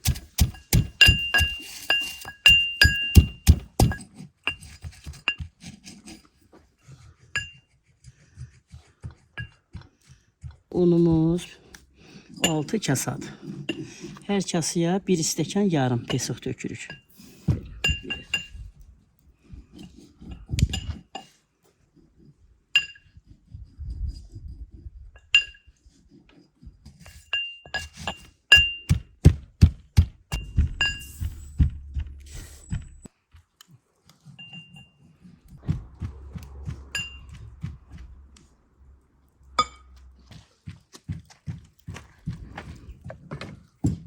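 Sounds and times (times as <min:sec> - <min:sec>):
glass clinking against bowls: 0:00.4 - 0:04.6, 0:12.4 - 0:12.8, 0:17.8 - 0:18.6, 0:39.6 - 0:39.9.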